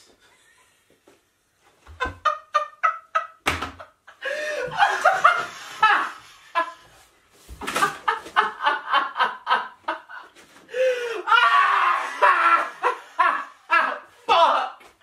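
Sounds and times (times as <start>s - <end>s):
man laughing: 2.0s - 6.9s, 7.8s - 14.5s.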